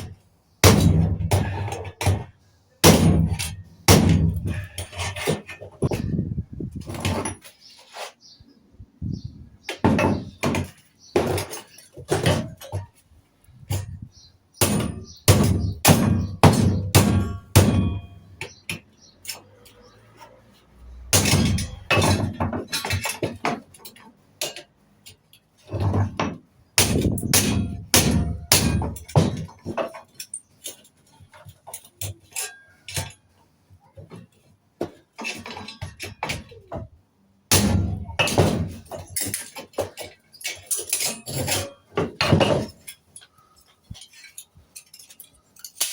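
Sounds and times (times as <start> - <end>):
hard metal knocks and bangs: 0.0 - 7.4, 9.6 - 13.0, 13.6 - 19.2, 21.1 - 23.8, 25.7 - 30.1, 37.5 - 42.9.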